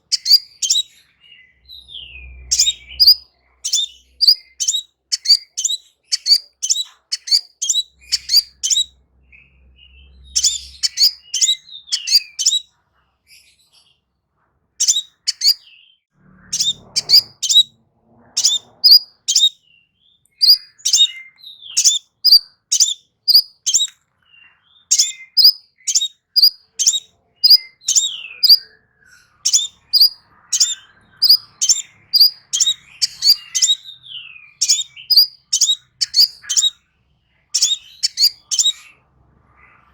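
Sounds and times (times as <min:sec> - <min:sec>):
bird singing high chips: 0:00.0 - 0:01.0, 0:02.0 - 0:08.9, 0:10.1 - 0:12.6, 0:14.8 - 0:15.7, 0:16.5 - 0:17.7, 0:18.4 - 0:19.6, 0:20.4 - 0:23.9, 0:24.8 - 0:28.8, 0:29.5 - 0:36.8, 0:37.5 - 0:39.0.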